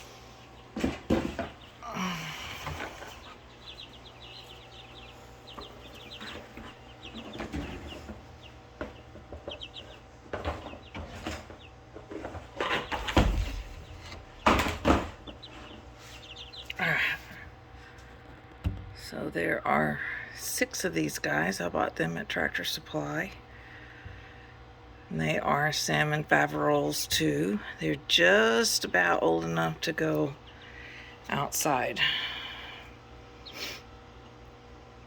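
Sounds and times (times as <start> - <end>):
chicks peeping: 0.0 - 35.0
faint steady hum: 0.0 - 35.0
loud bumps: 0.8 - 16.6, 18.6 - 19.3.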